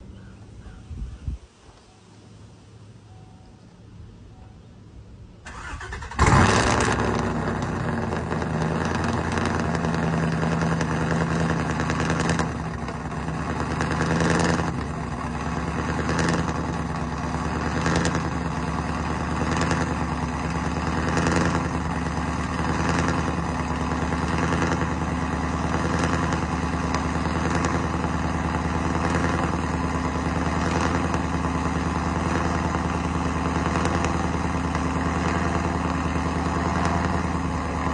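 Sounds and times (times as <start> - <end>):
engine idling with lope: 1.8 - 37.9
engine cranking: 5.5 - 12.5.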